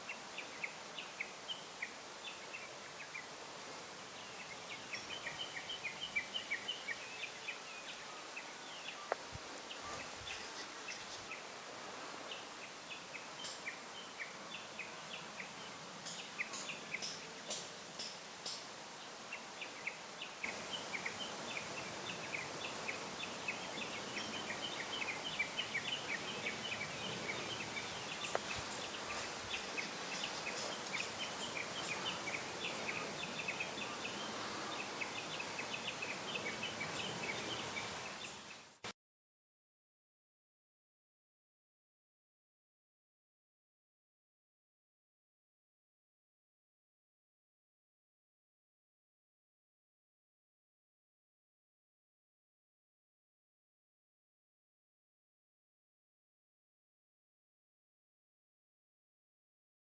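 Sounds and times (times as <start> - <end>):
small birds chirping: 0.0 - 3.4, 4.0 - 11.6, 12.2 - 38.8
outdoor background hiss: 0.0 - 39.0.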